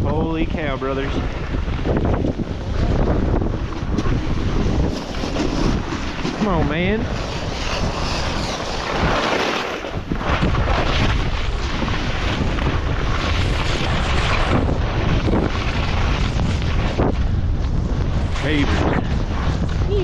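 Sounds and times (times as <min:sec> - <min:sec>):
wind buffeting microphone: 0:00.0 - 0:20.0
skis hissing through powder: 0:04.8 - 0:10.0.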